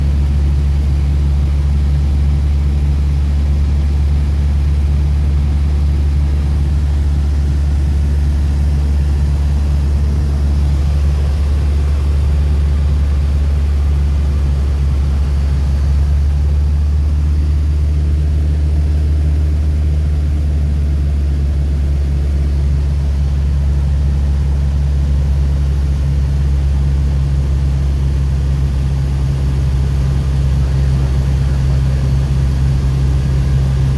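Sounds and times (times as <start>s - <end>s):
propeller aircraft engine droning: 0.0s - 33.9s.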